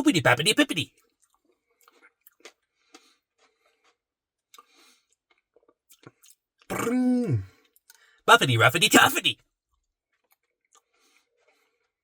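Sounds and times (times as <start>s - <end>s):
faint chewing and mouth clicks: 0.9s - 6.8s, 7.4s - 8.2s, 9.7s - 12.0s.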